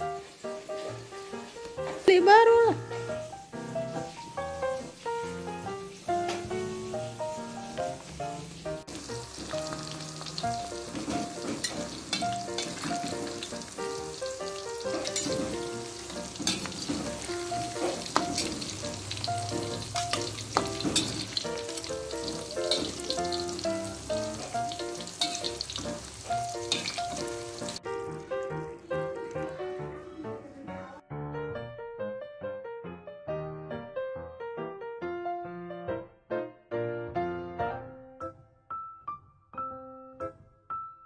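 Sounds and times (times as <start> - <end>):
food sizzling in hot oil: 0.0 - 31.0
light background music: 0.0 - 31.0
metal utensils clinking: 8.9 - 30.6.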